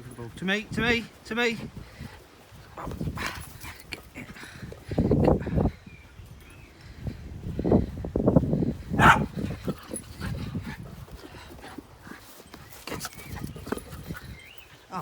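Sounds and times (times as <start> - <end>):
dog barking: 9.0 - 9.3.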